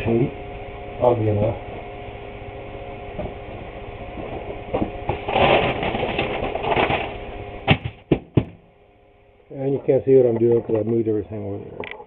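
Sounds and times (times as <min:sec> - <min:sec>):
electrical hum: 0:00.0 - 0:12.0
newspaper rustling: 0:05.2 - 0:07.2
sharp knocks: 0:07.7 - 0:08.6.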